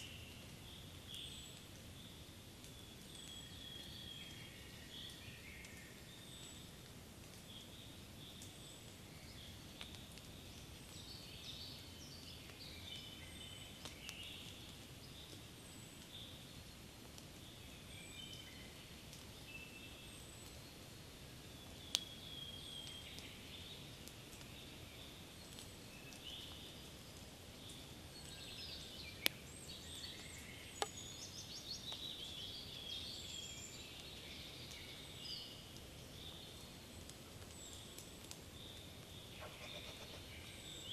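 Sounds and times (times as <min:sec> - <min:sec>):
faint background hiss: 0:00.0 - 0:40.9
birds chirping and trilling: 0:39.2 - 0:40.9.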